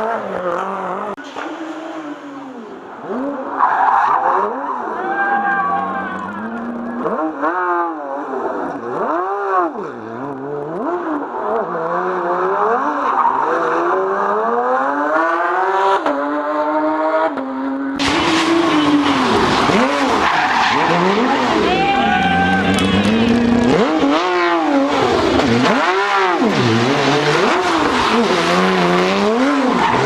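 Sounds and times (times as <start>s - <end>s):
rally car engine revving: 0.0s - 30.0s
harsh engine sound: 18.0s - 30.0s.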